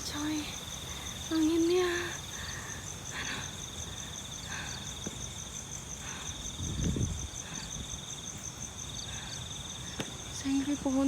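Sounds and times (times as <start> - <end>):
night insects trilling: 0.0 - 11.0
wind buffeting microphone: 6.4 - 8.0.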